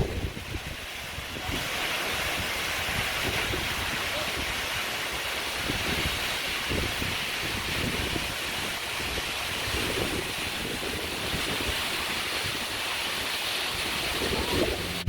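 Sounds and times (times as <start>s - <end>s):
waterfall rushing: 0.0s - 15.0s
wind buffeting microphone: 0.0s - 15.0s.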